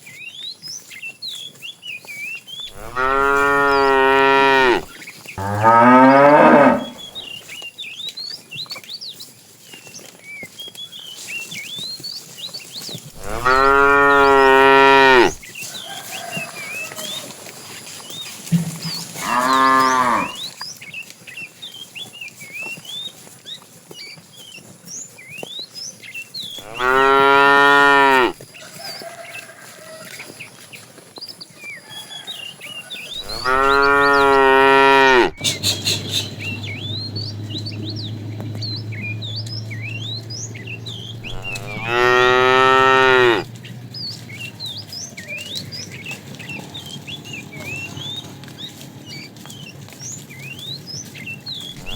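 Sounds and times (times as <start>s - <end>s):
cattle mooing: 2.7s - 7.3s, 13.2s - 15.4s, 18.9s - 20.5s, 26.6s - 28.4s, 33.2s - 43.6s.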